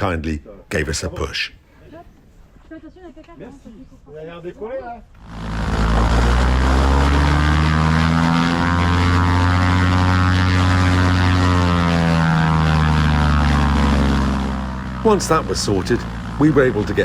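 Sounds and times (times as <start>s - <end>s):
propeller plane engine running: 5.2s - 17.0s.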